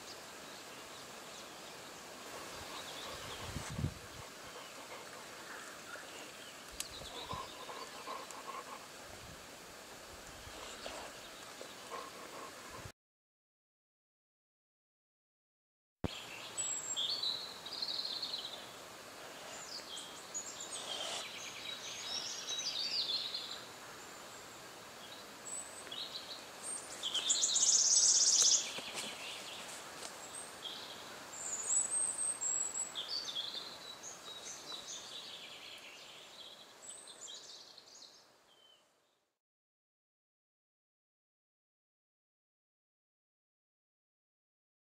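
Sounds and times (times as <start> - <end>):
small birds singing: 0.0 - 9.0, 10.3 - 12.8, 16.1 - 39.2
faint outdoor hiss: 0.0 - 12.9, 16.1 - 39.4.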